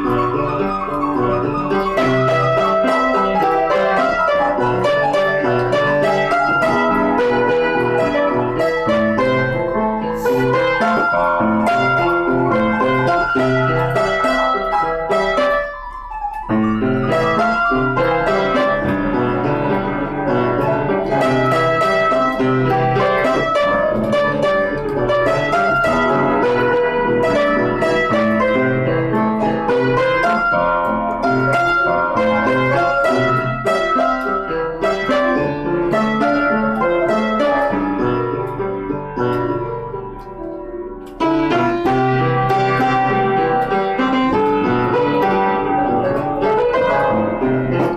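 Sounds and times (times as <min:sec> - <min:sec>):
instrumental piano music: 0:00.0 - 0:47.9.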